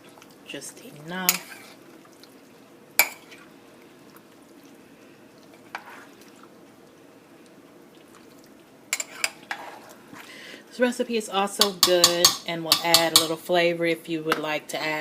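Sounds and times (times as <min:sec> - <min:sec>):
faint background noise: 0:00.0 - 0:15.0
spoon clinking against pot: 0:11.6 - 0:13.3.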